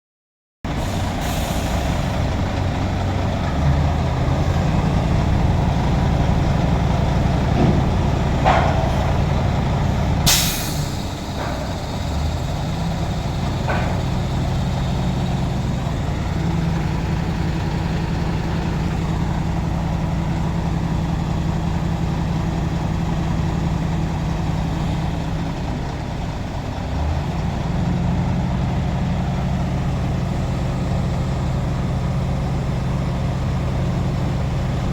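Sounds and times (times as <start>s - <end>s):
diesel truck engine running: 0.7s - 34.9s
air brake hiss: 0.8s - 2.2s, 10.3s - 12.1s.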